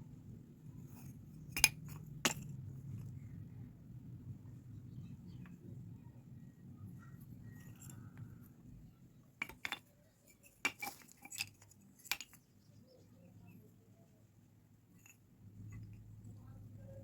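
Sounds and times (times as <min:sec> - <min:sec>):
clay pots clinking together: 0:09.4 - 0:12.4.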